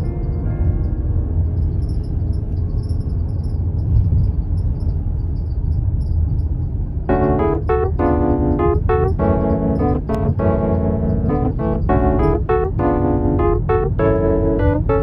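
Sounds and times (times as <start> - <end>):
keyboard chords: 0.0 - 2.0, 7.1 - 15.0
low droning ambient music: 0.0 - 15.0.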